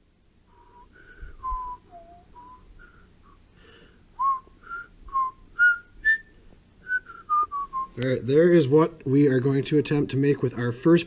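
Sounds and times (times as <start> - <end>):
person whistling a tune: 0.6 - 3.4, 4.2 - 8.0.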